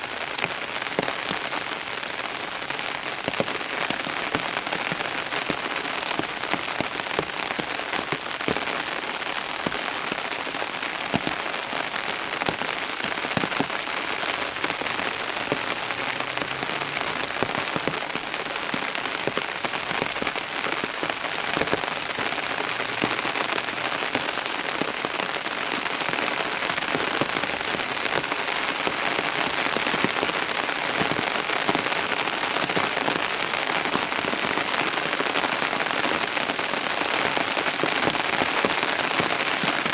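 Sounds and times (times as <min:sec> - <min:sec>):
rain falling: 0:00.0 - 0:39.9
raindrops pattering close by: 0:00.0 - 0:39.9.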